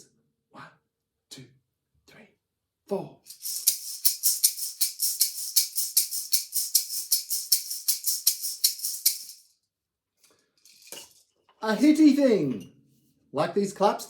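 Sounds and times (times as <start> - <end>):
maraca rattling: 3.3 - 9.5, 10.6 - 12.7.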